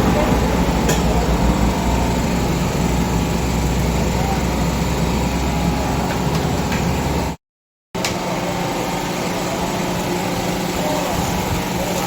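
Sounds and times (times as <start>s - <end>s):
dense engine-like noise: 0.0s - 7.4s, 8.0s - 12.0s.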